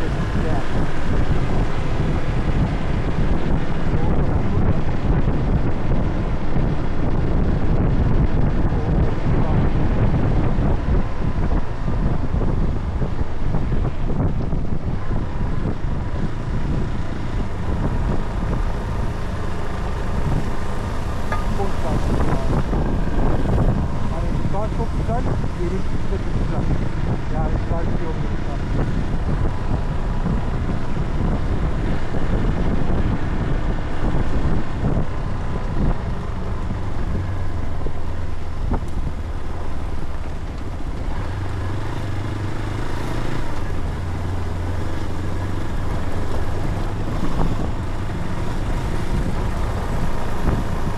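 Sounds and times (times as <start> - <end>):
vehicle low rumble: 0.0 - 50.9
wind buffeting microphone: 0.0 - 50.9.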